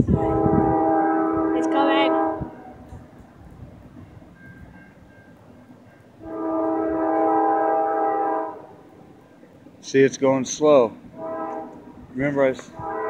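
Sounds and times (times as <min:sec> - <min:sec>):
locomotive air horn blast: 0:00.0 - 0:02.9, 0:06.2 - 0:08.9, 0:11.1 - 0:12.0, 0:12.6 - 0:13.0
train low rumble: 0:00.0 - 0:13.0.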